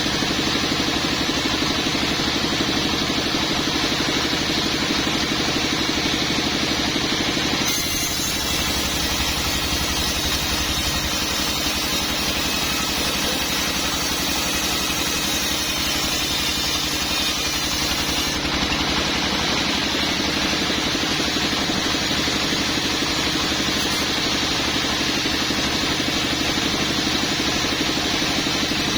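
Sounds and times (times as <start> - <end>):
sawmill machinery humming: 0.0 - 28.9
saw cutting log hiss: 7.6 - 18.8, 21.0 - 27.0.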